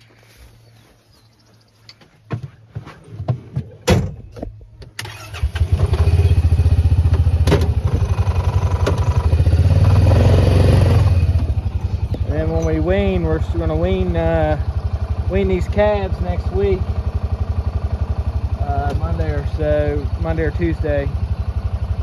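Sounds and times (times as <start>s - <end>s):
tractor engine running: 0.0s - 22.0s
clunks and knocks: 2.0s - 4.9s, 7.1s - 8.0s.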